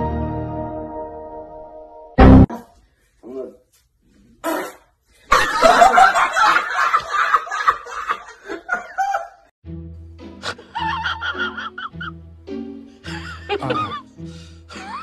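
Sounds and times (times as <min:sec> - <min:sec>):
music with steady bass: 0:00.0 - 0:02.5
people laughing: 0:05.3 - 0:09.5, 0:10.4 - 0:12.1, 0:13.1 - 0:14.1, 0:14.7 - 0:15.0.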